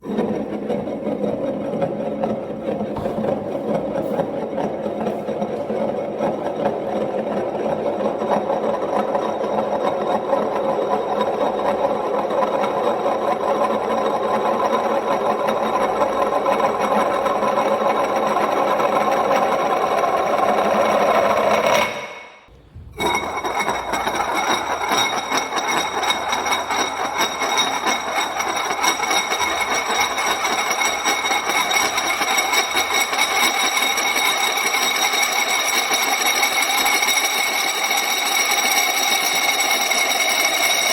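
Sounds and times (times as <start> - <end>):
bowl spinning on tile ringing: 0.0 - 40.9
bowl rattling on wood: 14.0 - 37.6.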